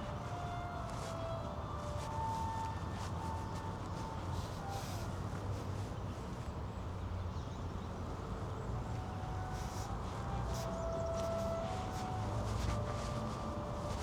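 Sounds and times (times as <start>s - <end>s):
distant traffic rumble: 8.0s - 14.0s.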